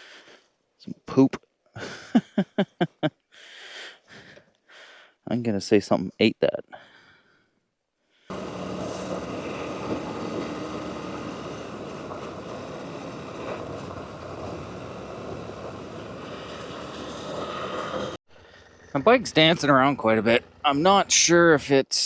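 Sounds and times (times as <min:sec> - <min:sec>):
wind: 0:00.0 - 0:22.0
motorcycle engine: 0:08.3 - 0:21.2
tyres on gravel road: 0:08.3 - 0:21.8.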